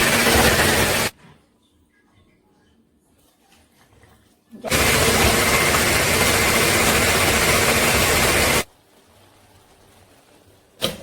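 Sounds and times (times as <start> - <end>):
electric blender whirring: 0.0 - 1.1, 4.7 - 8.7.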